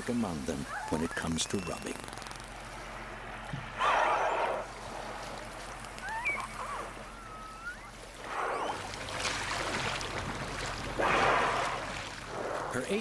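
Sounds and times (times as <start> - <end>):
killer whale whistles: 0.7 - 2.0, 3.8 - 4.6, 6.0 - 8.9.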